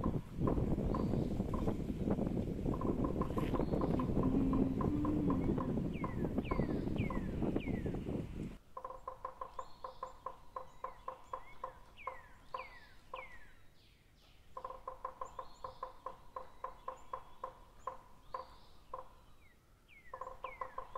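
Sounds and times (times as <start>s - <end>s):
bird pulsed notes: 2.7s - 8.1s
high bird chirps: 3.4s - 8.0s.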